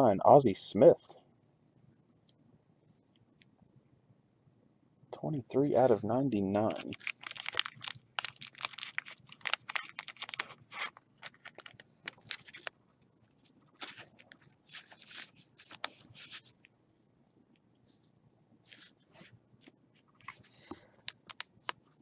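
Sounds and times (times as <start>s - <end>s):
cards and wrapping crinkling: 6.6s - 16.5s, 20.1s - 22.0s
paper rustling: 6.7s - 16.5s, 17.9s - 19.3s.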